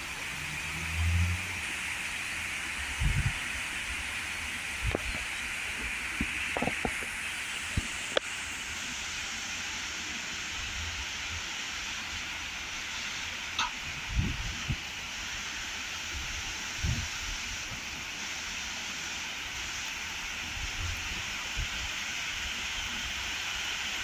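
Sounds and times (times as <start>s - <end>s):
heavy rain: 0.0s - 24.0s
wind: 0.0s - 24.0s.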